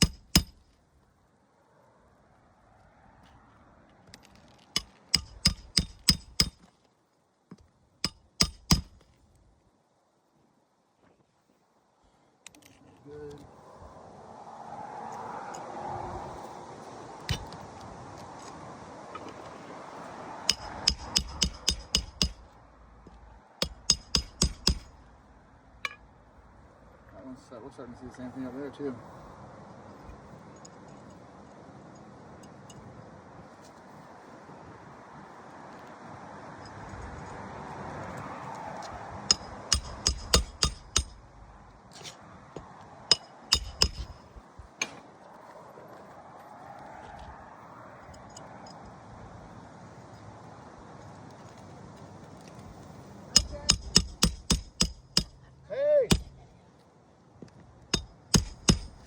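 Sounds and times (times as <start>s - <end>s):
hammer striking roofing nails: 0.0s - 0.6s, 4.8s - 6.7s, 8.0s - 9.0s, 20.5s - 22.5s, 23.6s - 25.0s, 39.3s - 41.3s, 43.1s - 45.0s, 53.3s - 55.4s, 56.1s - 56.4s, 58.0s - 59.0s.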